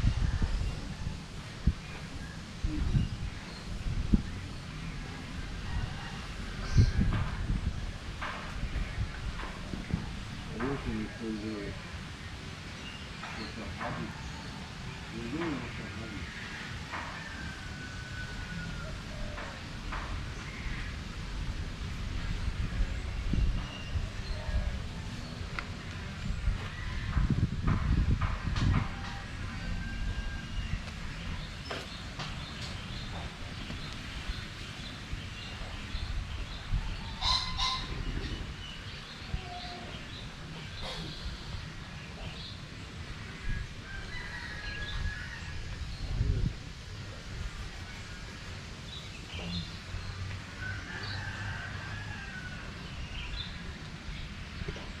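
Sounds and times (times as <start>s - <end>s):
steady low rumble: 0.0s - 12.6s
birds chirping and calling: 1.8s - 21.3s, 22.2s - 51.6s.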